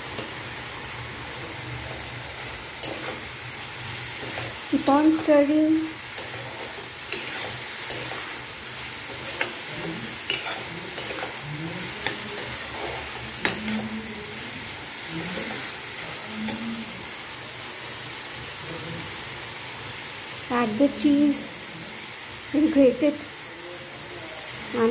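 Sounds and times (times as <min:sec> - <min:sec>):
vegetables sizzling in wok: 0:00.0 - 0:24.9
steel spatula scraping pan: 0:04.0 - 0:13.9.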